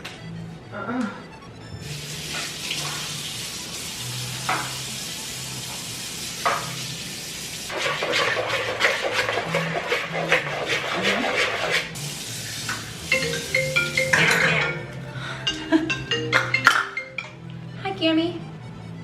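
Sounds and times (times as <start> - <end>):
tap running into a sink: 2.3 - 3.2, 4.4 - 4.8, 6.4 - 6.8.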